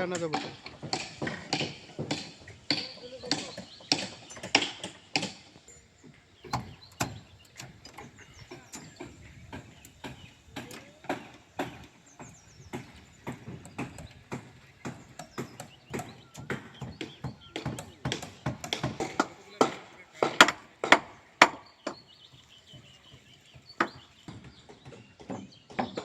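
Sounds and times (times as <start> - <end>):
construction knocks and taps: 0.0 - 22.5, 23.1 - 26.0.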